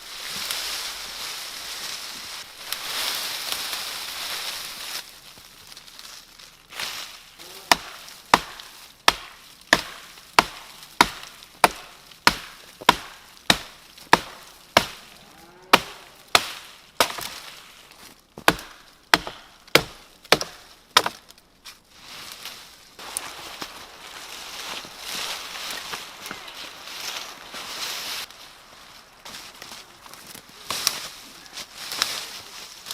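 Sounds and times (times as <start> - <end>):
axe chopping wood: 7.7 - 15.0, 15.7 - 17.5, 18.4 - 21.4.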